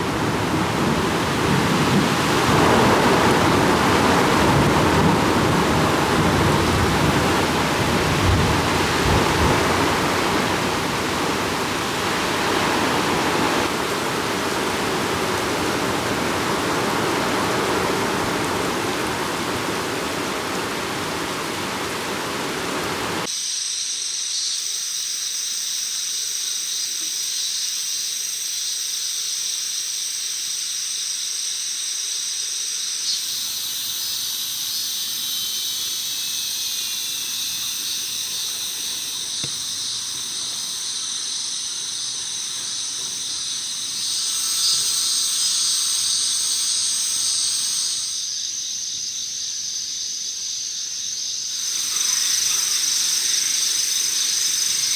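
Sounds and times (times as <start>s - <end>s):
heavy rain pouring: 0.0s - 23.3s
high-pitched hiss: 6.2s - 54.9s.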